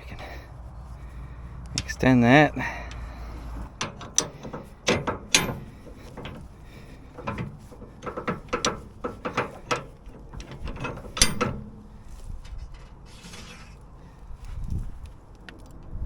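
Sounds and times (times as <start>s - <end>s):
metal clicks and clanks: 1.6s - 13.6s.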